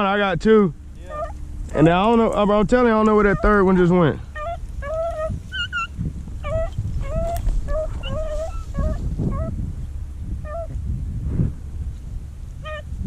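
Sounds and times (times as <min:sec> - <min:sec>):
low rumbling noise: 0:00.0 - 0:13.0
dogs yelping: 0:01.0 - 0:02.5, 0:03.1 - 0:09.7, 0:10.4 - 0:10.8, 0:12.6 - 0:12.9.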